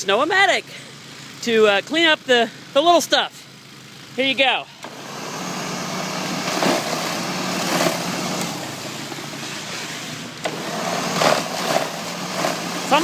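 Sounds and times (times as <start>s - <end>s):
electric snow thrower motor humming: 3.6s - 13.0s.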